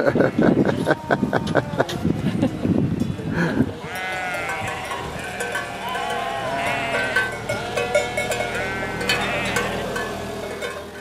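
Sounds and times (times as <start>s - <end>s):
sheep bleating: 3.8s - 10.4s
bells clanking: 3.9s - 11.0s.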